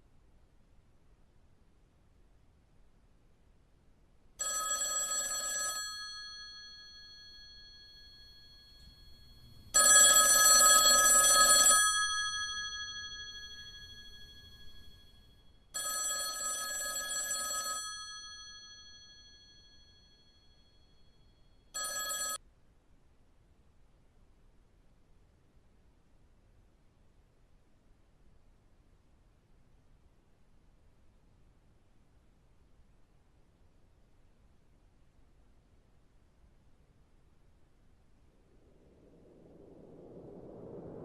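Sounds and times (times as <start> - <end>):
telephone bell ringing: 4.4 - 15.2, 15.8 - 22.4.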